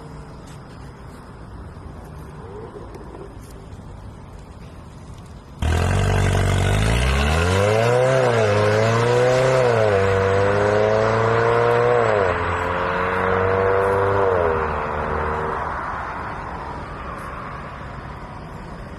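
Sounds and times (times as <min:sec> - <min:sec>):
turbocharged car engine revving: 0:05.6 - 0:15.5.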